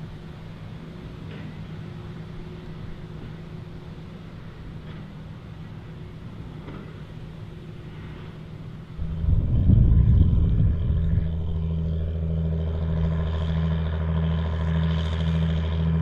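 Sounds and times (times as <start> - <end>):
tractor diesel engine running: 8.5 - 16.0.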